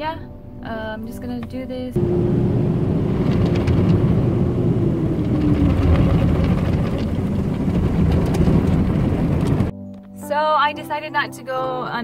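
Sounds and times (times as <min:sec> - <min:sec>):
water spraying in car wash: 0:02.0 - 0:09.7.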